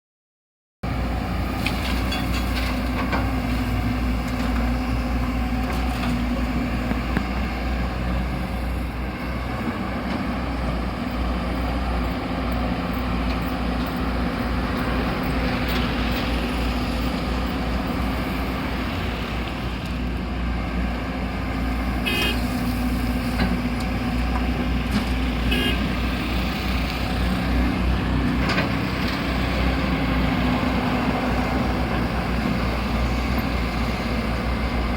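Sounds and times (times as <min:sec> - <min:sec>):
diesel engine rumbling: 0:00.8 - 0:34.9.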